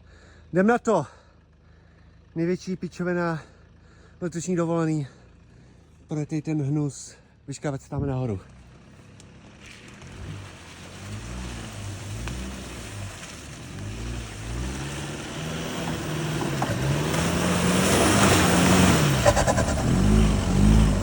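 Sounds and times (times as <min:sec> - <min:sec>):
spinning tyres churning mud: 0:08.2 - 0:21.0
engine revving: 0:08.4 - 0:21.0.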